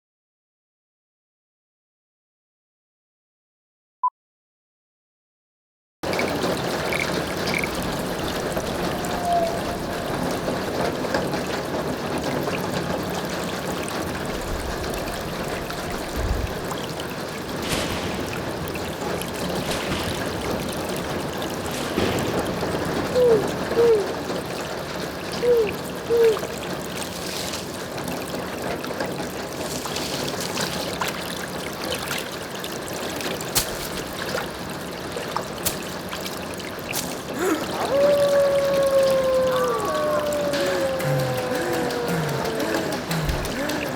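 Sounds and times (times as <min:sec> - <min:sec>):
trickling running water: 0:06.0 - 0:43.9.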